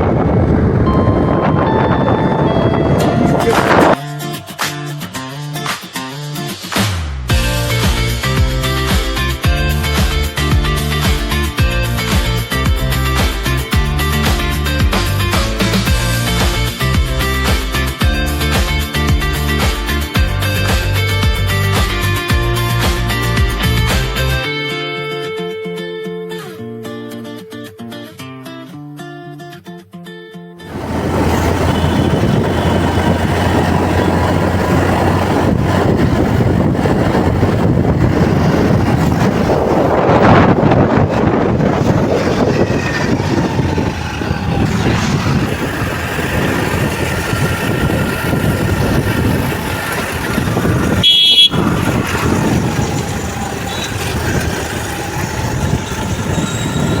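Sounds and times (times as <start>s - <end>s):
road traffic noise: 0.0s - 5.9s, 6.7s - 24.4s, 30.6s - 57.0s
vehicle horns sounding: 30.7s - 35.2s, 50.8s - 57.0s.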